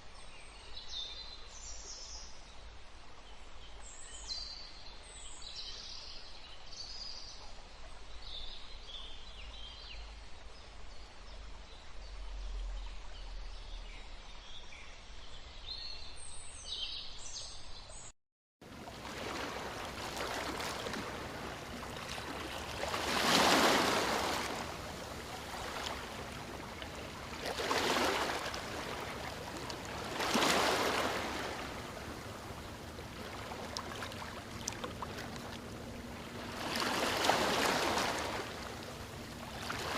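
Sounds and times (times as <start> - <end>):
rushing water: 18.6 - 39.9
steady low hum: 18.7 - 39.9
birds chirping: 20.2 - 39.9.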